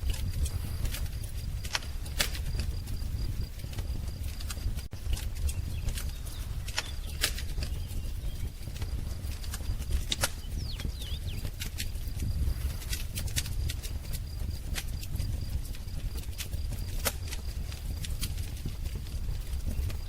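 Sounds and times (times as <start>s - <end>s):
wood fire crackling: 0.0s - 20.0s
bird chirp: 4.2s - 12.9s.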